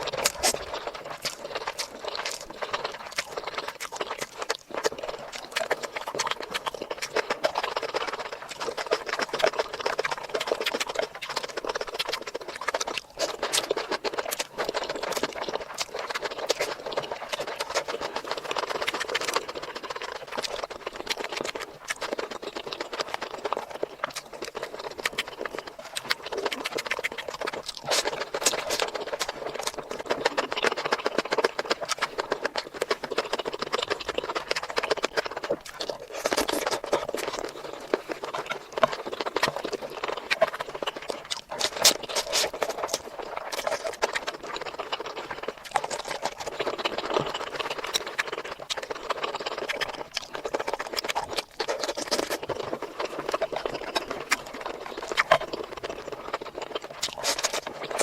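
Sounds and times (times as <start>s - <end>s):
wet chewing mouth sounds: 0.0s - 58.0s.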